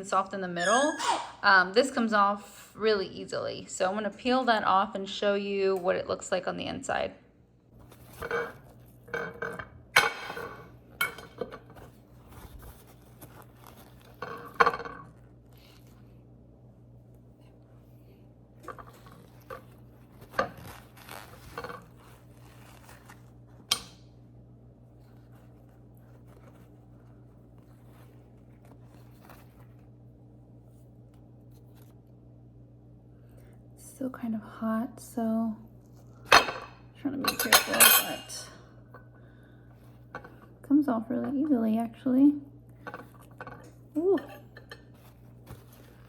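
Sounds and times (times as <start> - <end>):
steady low hum: 1.2 - 46.0
dishes clinking and knocking: 8.1 - 11.8, 36.3 - 38.5.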